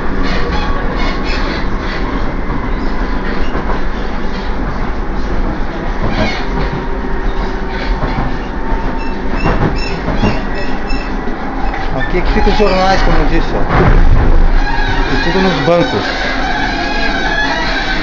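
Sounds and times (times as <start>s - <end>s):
train wheels rumbling on track: 0.0s - 18.0s
sharp knocks: 9.3s - 10.6s.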